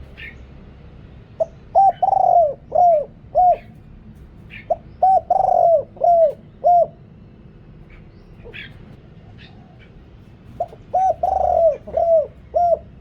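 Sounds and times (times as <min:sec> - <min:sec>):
dove cooing: 0:01.4 - 0:03.8, 0:04.5 - 0:07.1, 0:08.0 - 0:13.0.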